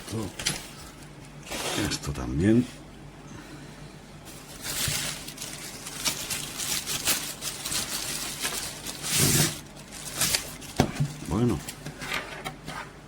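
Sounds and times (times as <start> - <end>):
packaging rustling and crinkling: 4.3 - 11.9.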